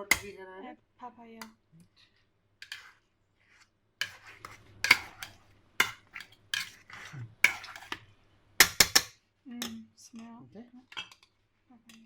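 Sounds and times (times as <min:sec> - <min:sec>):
utensil knocking and scraping bowl: 0:00.0 - 0:00.4, 0:02.6 - 0:09.8.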